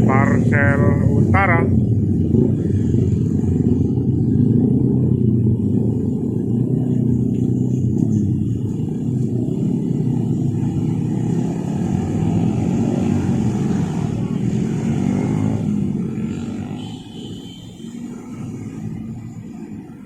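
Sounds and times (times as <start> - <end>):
train rumbling over rails: 0.0 - 12.8.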